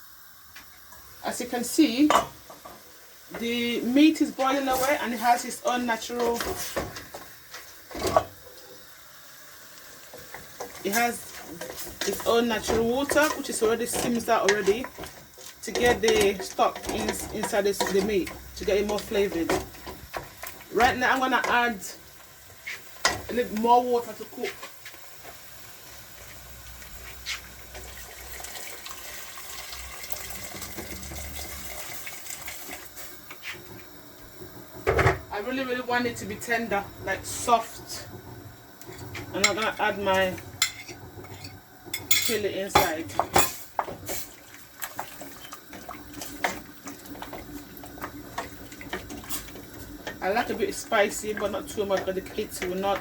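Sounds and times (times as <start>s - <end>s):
pot simmering with watery hiss: 0.0s - 53.0s
water pouring into a pot: 26.1s - 35.0s, 43.8s - 51.8s
knock on cooking pot: 34.8s - 35.3s.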